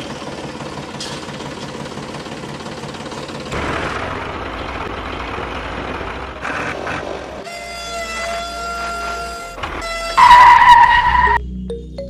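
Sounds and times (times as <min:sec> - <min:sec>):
engine running: 0:00.0 - 0:11.8.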